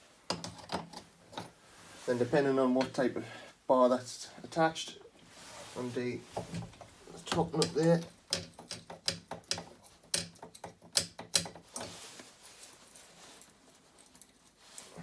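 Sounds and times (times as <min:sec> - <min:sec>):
faint hiss: 0:01.4 - 0:08.1
spanner clicking on metal nut: 0:07.6 - 0:11.7.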